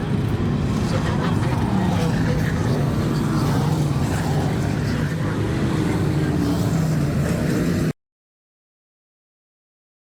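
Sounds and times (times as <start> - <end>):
race car engines droning: 0.0 - 7.9.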